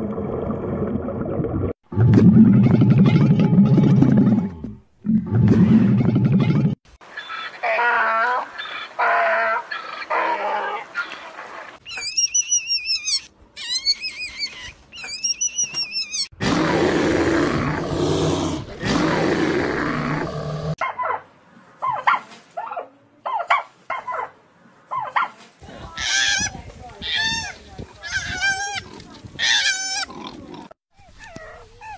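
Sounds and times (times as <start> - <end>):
high squealing animal calls: 7.1 - 16.3
loud rough animal roar: 16.4 - 20.8.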